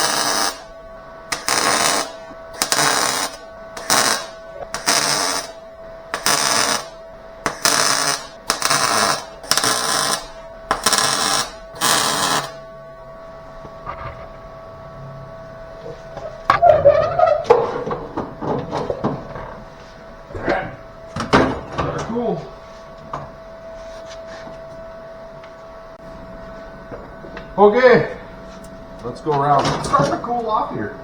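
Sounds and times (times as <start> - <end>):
crackling tack welds: 0.0 - 0.7, 1.3 - 12.6
faint steady hum: 0.0 - 31.0.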